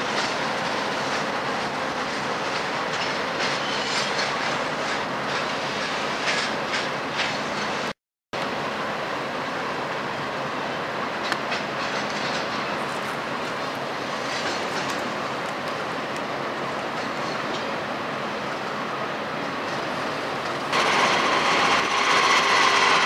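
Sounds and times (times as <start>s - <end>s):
train wheels clicking over rail joints: 0.0s - 7.9s, 11.2s - 17.9s, 19.5s - 23.0s
passenger train wheel noise: 0.0s - 23.0s.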